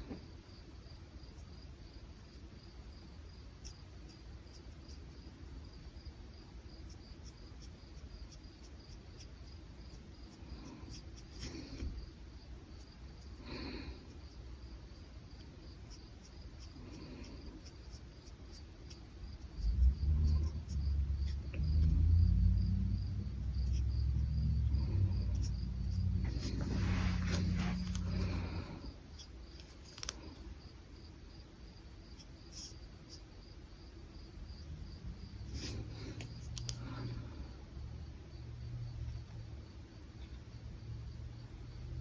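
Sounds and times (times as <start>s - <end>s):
crickets chirping: 0.1s - 42.0s
low rumble: 19.8s - 28.8s
brush pen strokes on paper: 25.3s - 30.1s, 35.5s - 36.6s.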